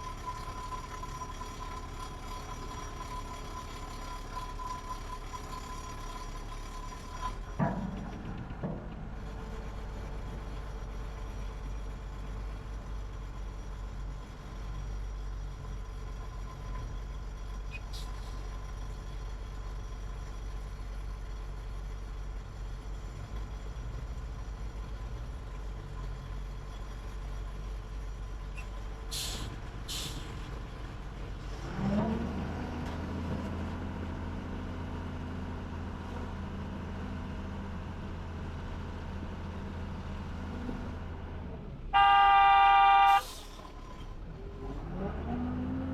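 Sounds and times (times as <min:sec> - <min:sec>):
diesel engines rumbling: 0:00.0 - 0:45.9
air brake hisses: 0:17.9 - 0:18.4, 0:29.1 - 0:30.4, 0:43.0 - 0:43.7
engine revving: 0:44.4 - 0:45.9.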